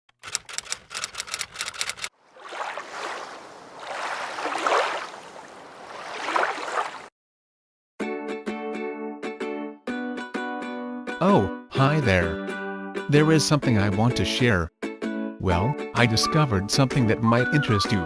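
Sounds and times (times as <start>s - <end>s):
rapid clicking: 0.1s - 2.1s
ocean waves washing in: 2.2s - 7.1s.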